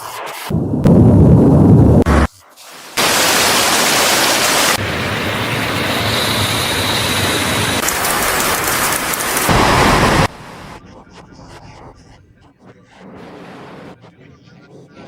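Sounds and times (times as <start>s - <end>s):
flowing water rushing: 2.7s - 10.8s
faint high whine: 4.4s - 10.9s.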